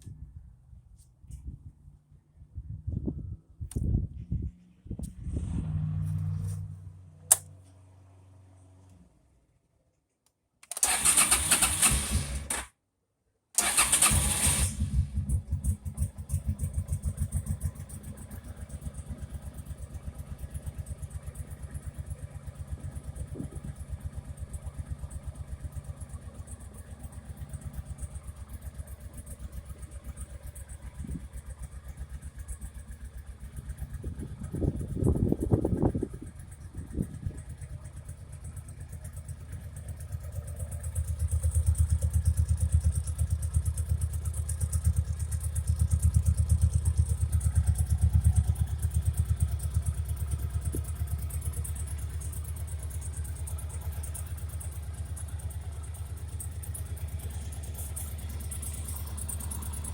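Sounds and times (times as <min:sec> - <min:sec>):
sharp click: 0:07.3 - 0:07.5
motorcycle starter cranking: 0:10.6 - 0:12.7, 0:13.6 - 0:17.6
motorcycle engine idling: 0:13.7 - 0:59.9.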